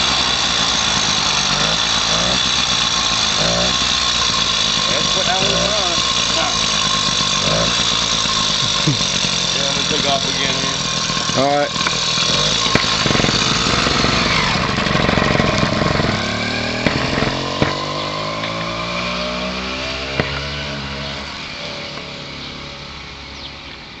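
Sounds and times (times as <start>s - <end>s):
sharp ticks: 0.0s - 14.6s
two-stroke bicycle engine revving: 0.0s - 24.0s.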